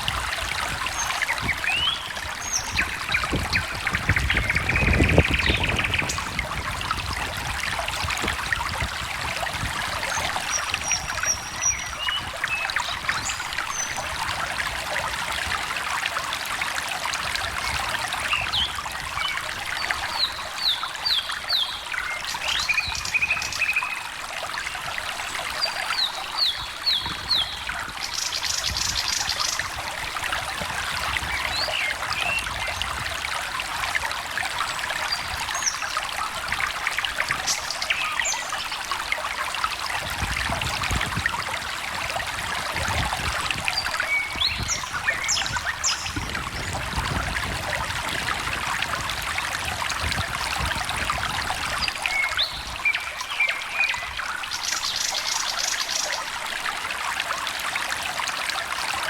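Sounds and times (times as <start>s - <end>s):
songbirds calling: 0.0s - 8.5s, 9.6s - 14.2s, 17.5s - 30.2s, 31.0s - 33.2s, 34.5s - 39.7s, 42.9s - 47.0s, 51.6s - 56.4s
stream trickling: 0.0s - 59.0s.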